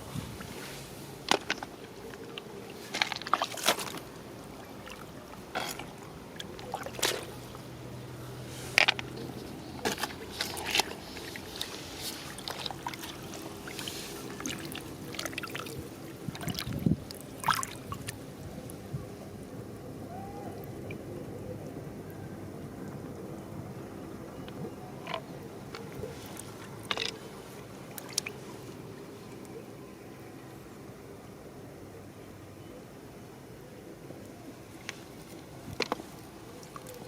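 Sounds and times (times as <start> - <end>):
water splashing: 1.4 - 7.7, 9.8 - 18.4, 25.0 - 28.9.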